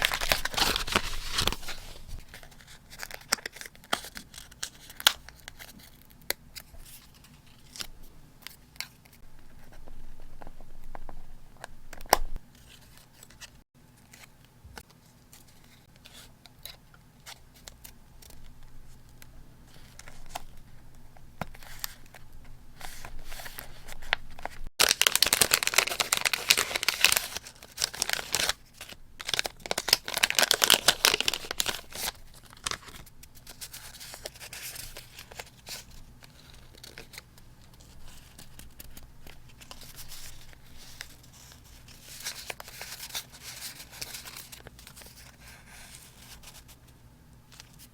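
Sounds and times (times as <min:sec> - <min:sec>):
paper rustling: 0:00.0 - 0:06.0, 0:22.8 - 0:46.8.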